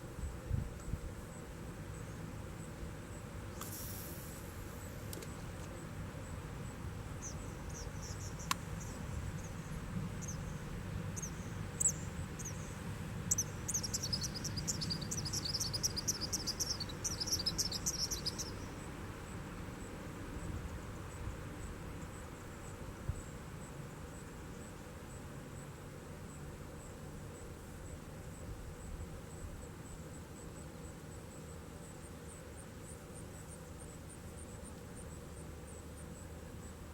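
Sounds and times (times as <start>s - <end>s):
sharp click: 3.6s - 4.2s
high chirping: 13.3s - 18.6s.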